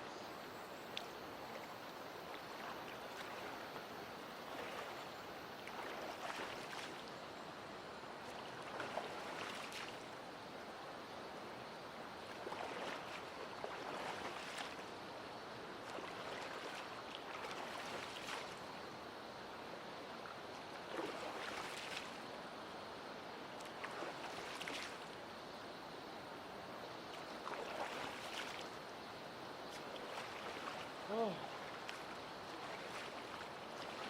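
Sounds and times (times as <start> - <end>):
water splashes: 0.8 - 7.2, 8.2 - 10.2, 12.2 - 15.0, 15.8 - 18.8, 20.2 - 22.3, 23.5 - 25.2, 27.0 - 28.9, 29.6 - 34.0
stream flowing over rocks: 26.3 - 34.0.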